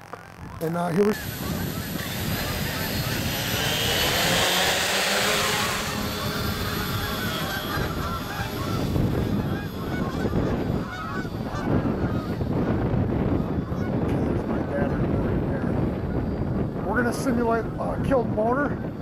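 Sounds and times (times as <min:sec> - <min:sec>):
quadcopter motors hissing: 0:00.0 - 0:13.6
wind buffeting microphone: 0:00.0 - 0:19.0.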